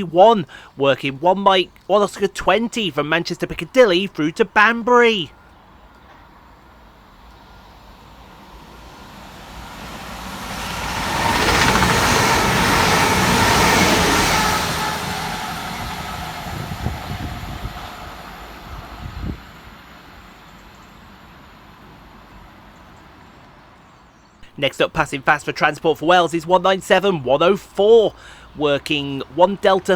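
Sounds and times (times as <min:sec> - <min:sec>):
train passing fast: 0:06.3 - 0:23.8, 0:24.4 - 0:29.9.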